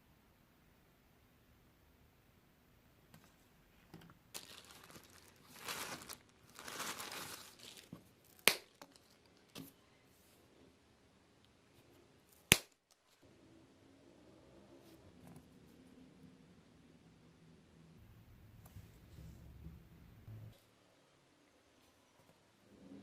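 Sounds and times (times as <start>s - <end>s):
material crinkling and rustling: 3.2s - 9.8s
sharp snaps: 8.4s - 8.8s, 12.4s - 12.9s.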